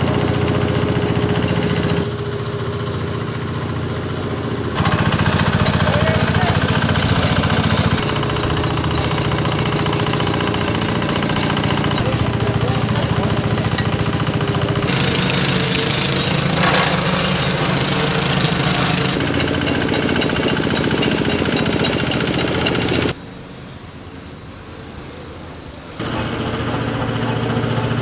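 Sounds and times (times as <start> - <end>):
road-repair machinery engine: 0.0 - 28.0
rapid pounding: 4.8 - 23.1.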